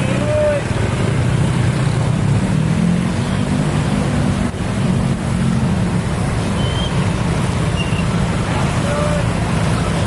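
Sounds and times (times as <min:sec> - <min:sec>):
vehicles passing: 0:00.0 - 0:10.0
brief high squeak: 0:06.6 - 0:07.0, 0:07.7 - 0:08.1.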